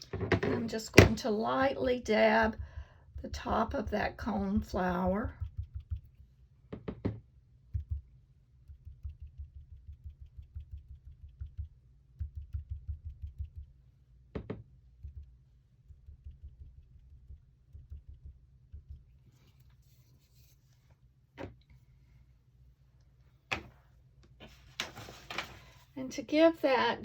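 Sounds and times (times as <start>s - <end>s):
sponge tapping on cardstock: 2.5s - 8.1s.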